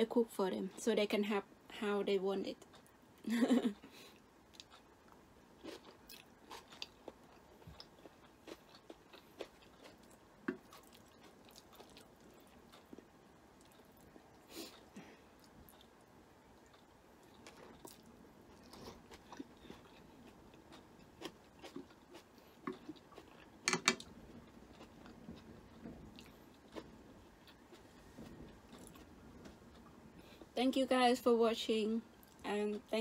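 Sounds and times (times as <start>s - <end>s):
person chewing: 3.8s - 30.5s
chopsticks clicking: 23.7s - 24.1s.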